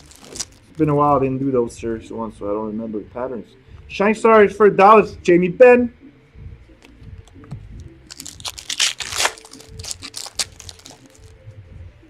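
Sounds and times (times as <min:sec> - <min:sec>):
wrapper crinkling and tearing: 0:00.0 - 0:00.8, 0:08.0 - 0:11.3
cards rustling and clicking: 0:06.8 - 0:11.3.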